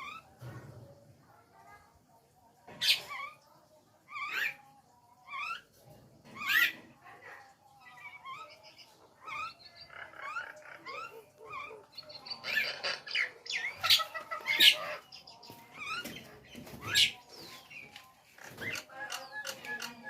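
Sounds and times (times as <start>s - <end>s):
harsh bird calls: 8.0s - 20.0s.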